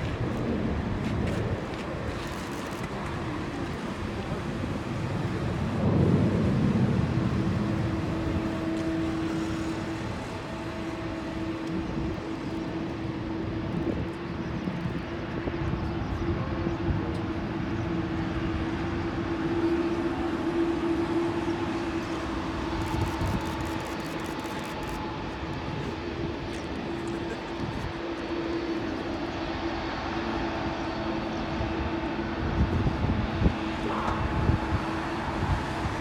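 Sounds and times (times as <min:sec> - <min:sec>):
jet engines humming: 0:00.0 - 0:36.0.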